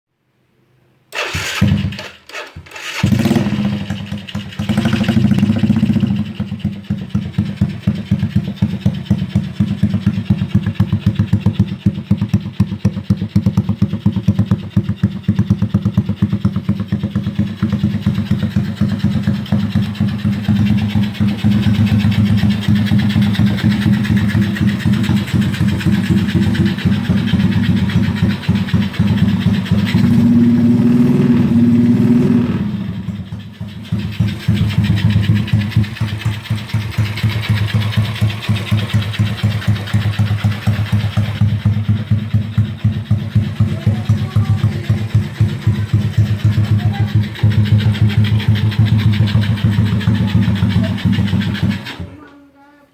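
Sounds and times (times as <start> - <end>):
motorcycle engine starting and idling: 1.1 - 52.7.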